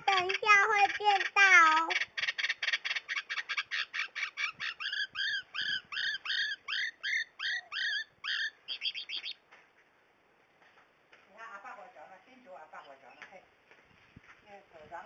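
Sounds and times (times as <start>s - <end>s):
small bird singing: 0.0s - 9.4s.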